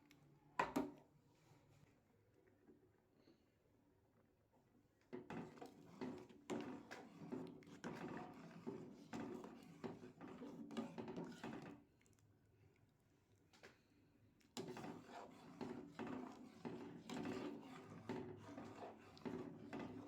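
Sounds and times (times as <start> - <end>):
utensil scraping in cooking pot: 5.3 - 11.8, 14.6 - 20.0.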